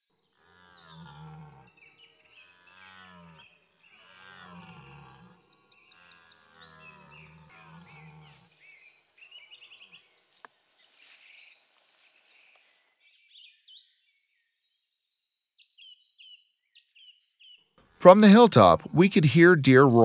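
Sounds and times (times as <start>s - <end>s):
small birds chirping: 4.9s - 17.8s
low-pitched call: 18.0s - 20.0s.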